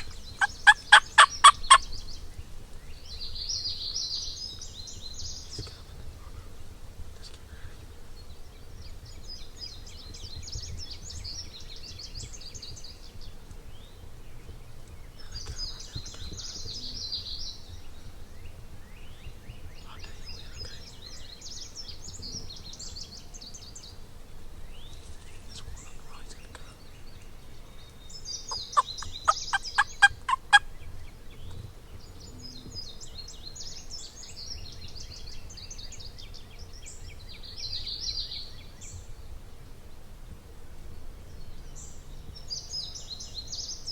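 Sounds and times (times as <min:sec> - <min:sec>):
turkey calling: 0:00.0 - 0:01.9, 0:28.4 - 0:30.7
songbirds singing: 0:00.0 - 0:43.9.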